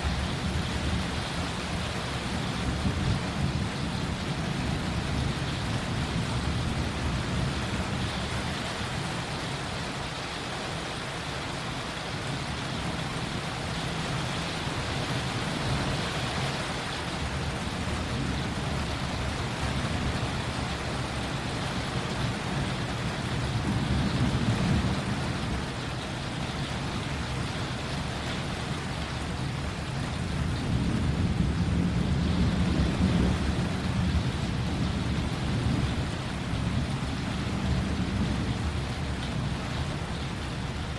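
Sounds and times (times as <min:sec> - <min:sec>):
thunder rumbling: 0:00.0 - 0:09.4, 0:12.2 - 0:40.9
rain falling: 0:00.0 - 0:40.9.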